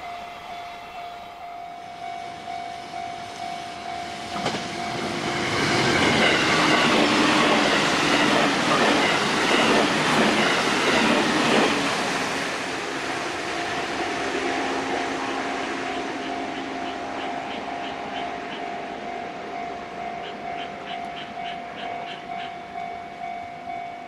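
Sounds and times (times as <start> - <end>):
train wheels clickety-clack: 4.2 - 12.6.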